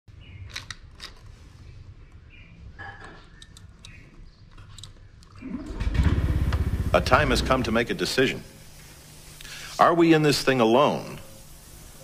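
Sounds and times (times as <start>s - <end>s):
birds chirping: 1.6s - 5.8s.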